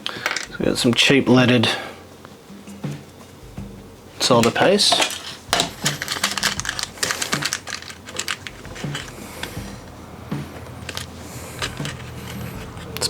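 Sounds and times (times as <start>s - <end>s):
small objects clicking on workbench: 0.0s - 0.6s, 4.4s - 9.8s, 10.4s - 13.0s.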